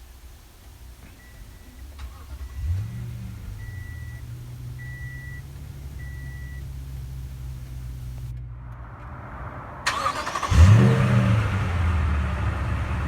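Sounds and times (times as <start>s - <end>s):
truck engine idling: 0.0s - 13.0s
single-tone warning chime beeps: 4.8s - 5.4s, 6.0s - 6.7s.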